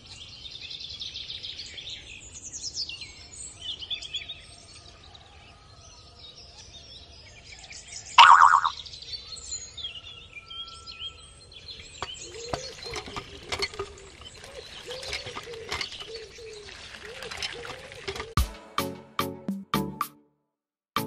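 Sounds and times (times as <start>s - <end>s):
small birds chirping: 0.0s - 18.4s
loud bird call: 8.2s - 8.8s.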